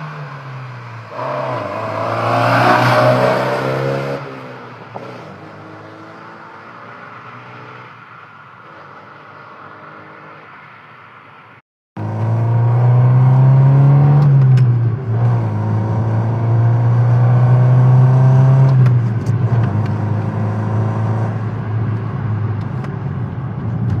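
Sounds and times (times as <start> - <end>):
car engine revving: 1.1 - 7.9, 12.0 - 24.0.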